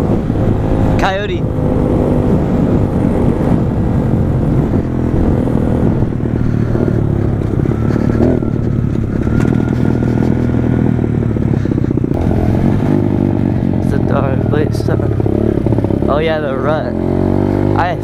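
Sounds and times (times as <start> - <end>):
pit bike engine running: 0.0 - 18.0.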